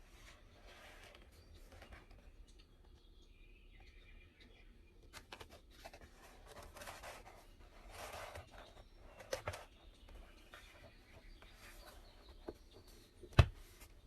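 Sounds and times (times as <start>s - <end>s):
paper rustling: 5.1s - 14.0s.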